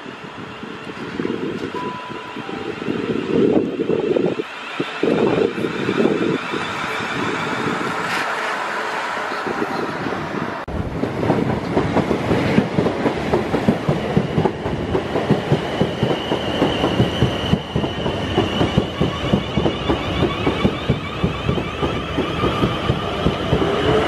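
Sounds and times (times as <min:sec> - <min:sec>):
train wheels clattering: 0:10.9 - 0:24.0.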